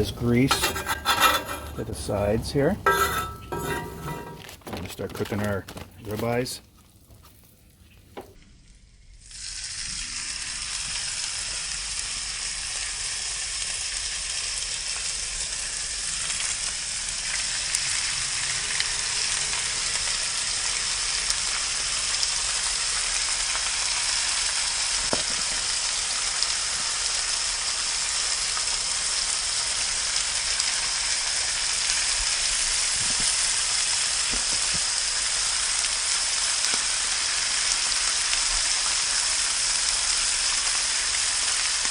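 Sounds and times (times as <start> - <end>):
meat sizzling in a pan: 9.2 - 41.9.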